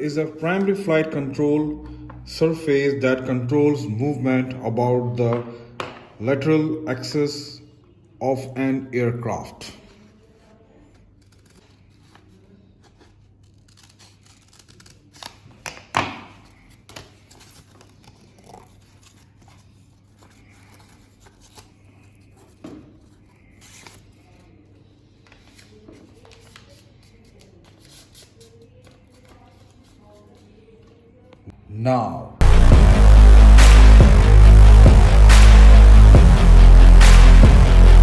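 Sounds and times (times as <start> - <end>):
paper rustling: 10.8 - 31.0
scissors cutting paper: 11.0 - 15.8, 16.5 - 22.6.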